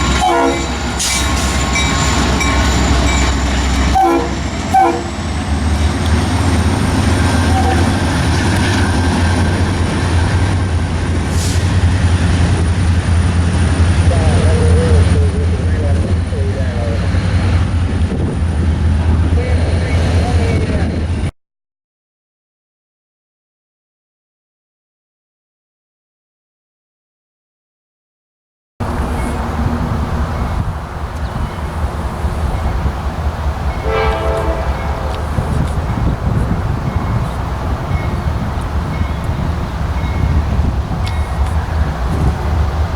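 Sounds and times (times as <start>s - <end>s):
locomotive air horn blast: 0.0s - 2.3s, 3.6s - 5.3s, 6.6s - 8.3s, 28.8s - 38.4s
train rumbling by: 0.0s - 21.3s, 28.8s - 42.9s.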